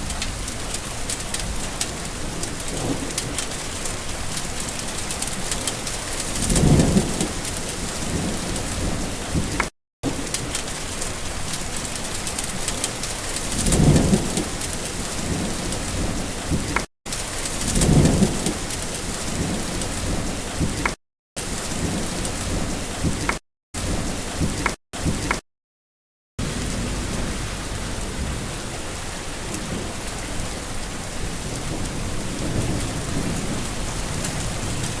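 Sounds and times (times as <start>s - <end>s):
heavy rain falling: 0.0s - 25.4s, 26.4s - 35.0s
low rolls of thunder: 0.1s - 3.6s, 6.1s - 10.6s, 13.4s - 20.9s, 21.6s - 25.3s, 26.4s - 35.0s.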